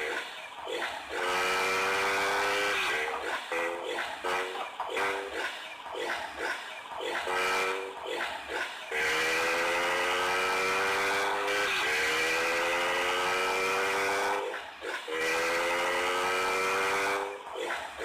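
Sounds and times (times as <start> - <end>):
small motorcycle engine accelerating: 0.0 - 18.0.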